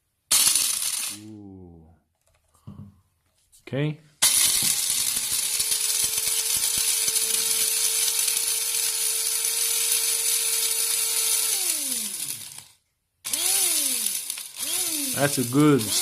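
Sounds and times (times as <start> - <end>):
coffee grinder motor whining: 0.3 - 1.2, 4.2 - 12.7, 13.3 - 16.0
grinder motor spinning down: 0.3 - 1.2, 4.2 - 12.7, 13.3 - 16.0.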